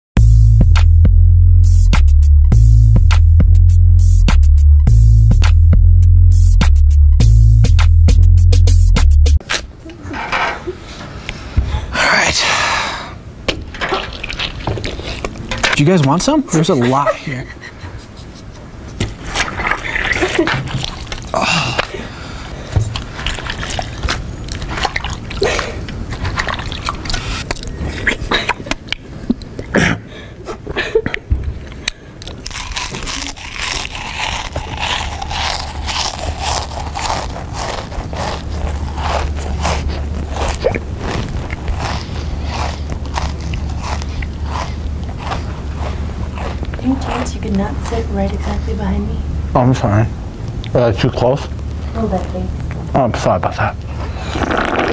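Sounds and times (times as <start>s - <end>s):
steady low hum: 0.2s - 54.5s
person chewing noisily: 14.0s - 15.6s, 19.2s - 29.7s, 31.7s - 47.6s.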